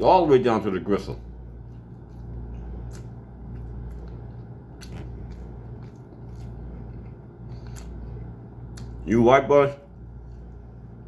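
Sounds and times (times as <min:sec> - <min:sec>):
low hum: 0:00.0 - 0:11.0
person chewing: 0:01.3 - 0:09.0.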